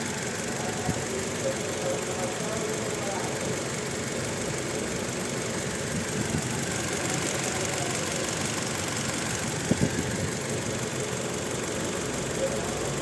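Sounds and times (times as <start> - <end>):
engine idling with misfire: 0.0 - 13.0.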